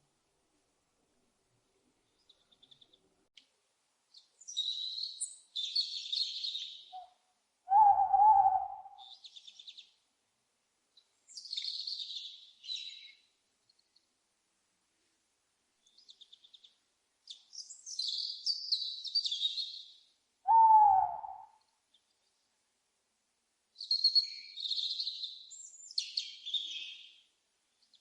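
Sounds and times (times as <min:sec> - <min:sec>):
owl screeching: 0:07.7 - 0:09.0, 0:20.5 - 0:21.5
owl wavering call: 0:07.7 - 0:09.2, 0:20.5 - 0:21.6.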